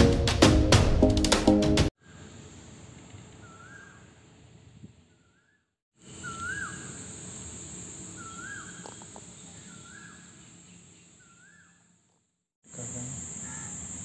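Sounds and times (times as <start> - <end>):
bird whistled call: 3.4 - 4.0, 6.2 - 7.0, 8.2 - 8.9, 9.6 - 10.2
high-pitched insect drone: 12.7 - 14.0.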